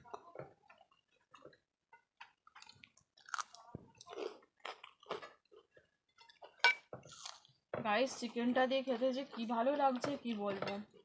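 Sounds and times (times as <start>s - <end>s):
chewing and mouth smacks: 0.1s - 7.6s.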